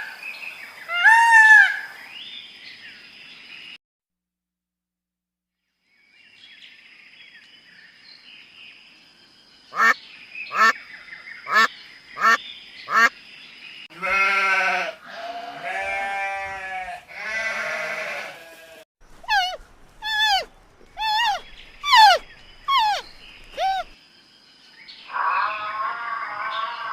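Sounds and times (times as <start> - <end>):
duck quacking: 9.8 - 10.8, 11.5 - 13.1
long wavering bleats: 13.9 - 23.9, 25.1 - 26.9.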